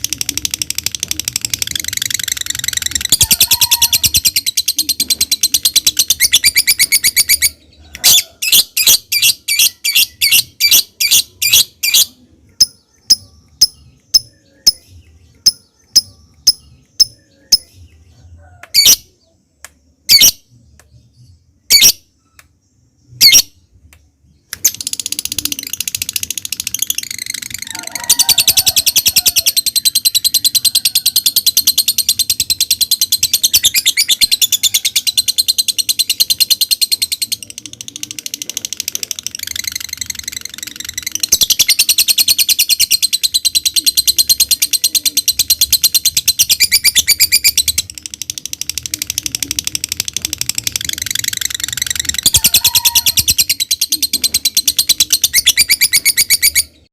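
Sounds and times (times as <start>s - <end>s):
lovebird calling: 49.7s - 56.8s.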